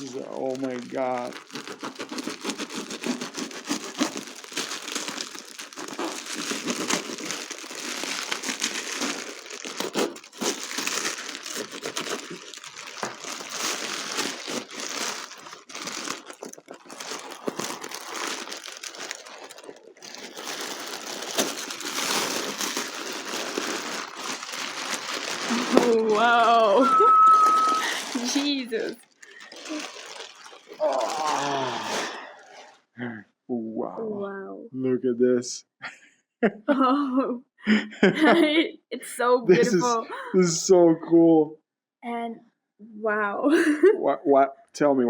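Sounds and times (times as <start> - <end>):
paper packing crinkling: 0.0 - 32.9, 39.6 - 40.5.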